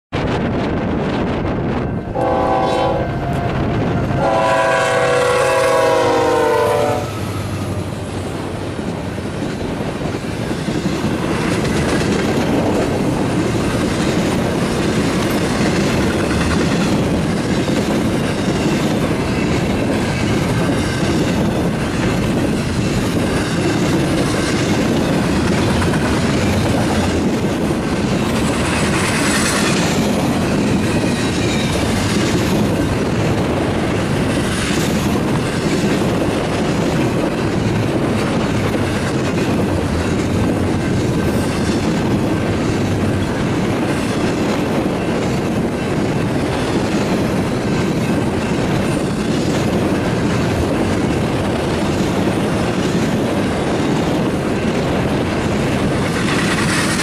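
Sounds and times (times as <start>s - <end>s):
locomotive horn blasts: 2.0s - 7.5s
train wheels clattering over rail joints: 7.2s - 57.0s.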